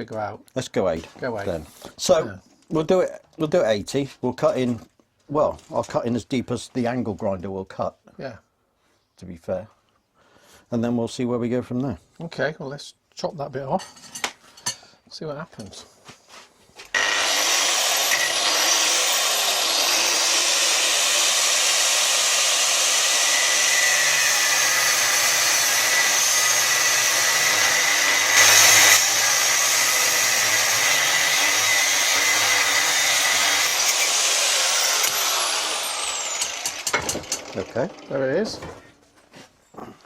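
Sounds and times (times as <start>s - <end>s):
angle grinder cutting steel: 16.9s - 38.8s.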